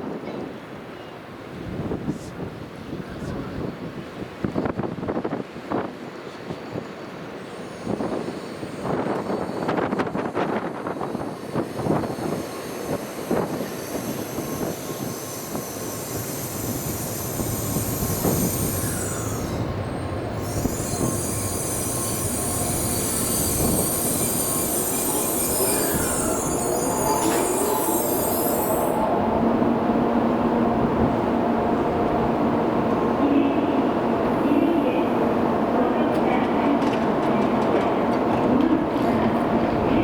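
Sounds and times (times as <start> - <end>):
train rumbling past: 0.0 - 40.0
high steady squeal: 7.4 - 29.3
steady tones: 10.8 - 36.5.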